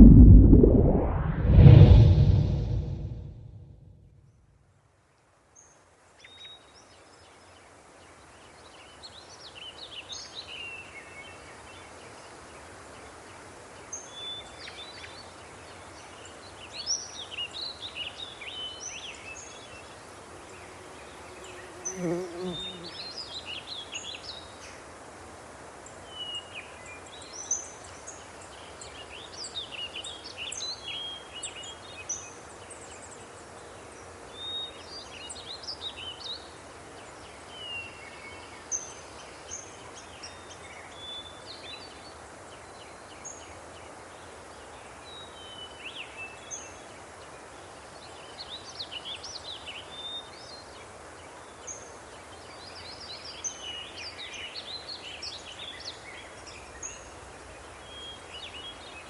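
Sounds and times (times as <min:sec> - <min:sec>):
outdoor ambience hiss: 0:17.8 - 0:59.0.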